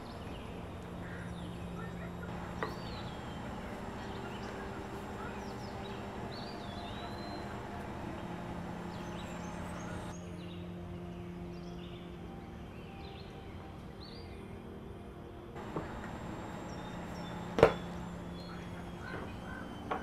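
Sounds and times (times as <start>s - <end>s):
steady low hum: 0.0s - 10.2s, 15.6s - 20.0s
birds chirping whistled calls: 0.0s - 10.6s, 15.6s - 20.0s.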